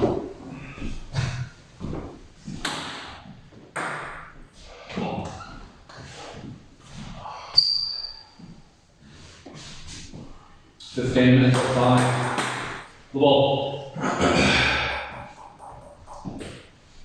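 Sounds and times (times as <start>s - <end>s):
table tennis ball knocking: 11.5s - 12.9s.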